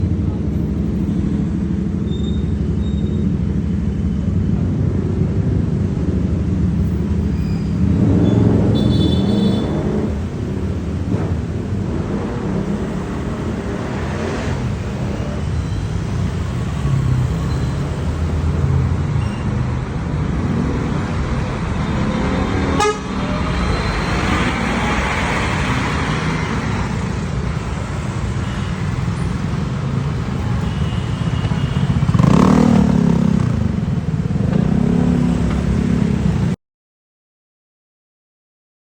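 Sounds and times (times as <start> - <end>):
horn toots: 7.4 - 10.3, 21.8 - 24.6.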